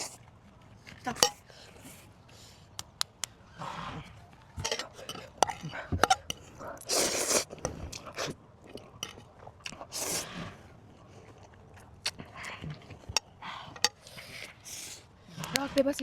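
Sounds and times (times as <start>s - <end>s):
person chewing crunchy food: 4.0s - 15.6s.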